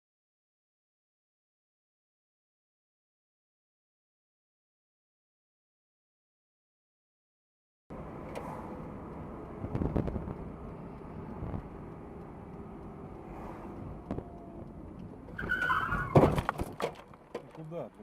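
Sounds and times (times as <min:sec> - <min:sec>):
traffic and road noise: 0:07.9 - 0:18.0
tyres skidding: 0:08.0 - 0:18.0.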